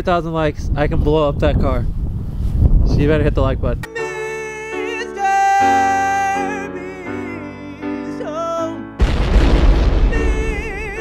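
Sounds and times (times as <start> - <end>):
loud boom: 9.0 - 11.0.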